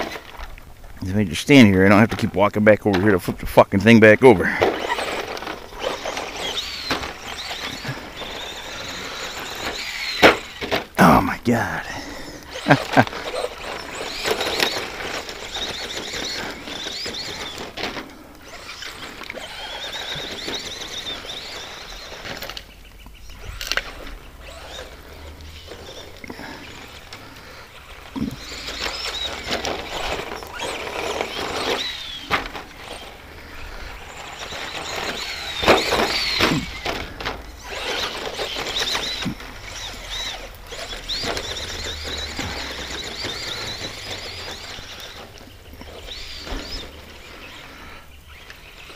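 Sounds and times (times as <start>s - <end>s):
electric motor and gears whining: 0.0s - 3.2s, 3.8s - 48.9s
toy truck thumps landing: 4.6s - 11.0s, 34.4s - 39.5s.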